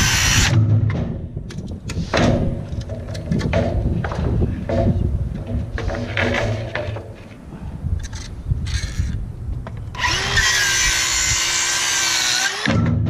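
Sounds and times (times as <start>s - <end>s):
power tool whining: 0.0s - 0.5s, 9.9s - 12.9s
knocks and scraping on roof: 0.7s - 9.1s.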